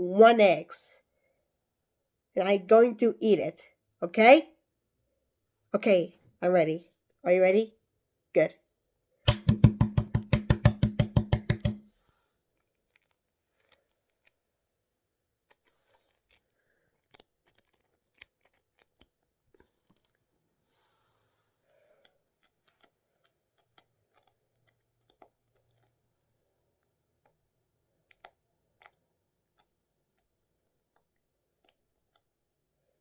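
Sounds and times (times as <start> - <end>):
egg shell cracking: 9.3 - 11.8
quick pitched beats: 9.3 - 11.8.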